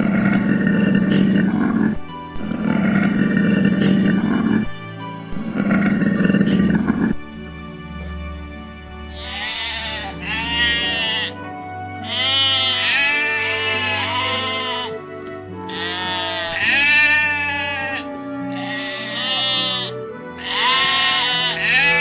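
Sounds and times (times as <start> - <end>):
background music with sustained notes: 0.0 - 22.0
sheep bleating: 9.2 - 11.4, 12.0 - 15.0, 15.6 - 22.0.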